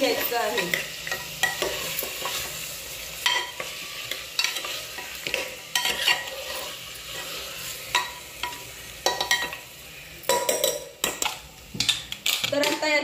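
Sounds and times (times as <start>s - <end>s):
meat sizzling in hot oil: 0.0s - 13.0s
spatula scraping and knocking pot: 3.2s - 9.6s.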